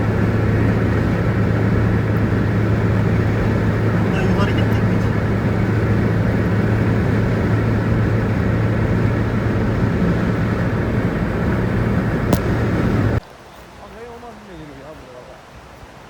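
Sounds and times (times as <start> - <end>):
vehicle engine humming: 0.0 - 13.2.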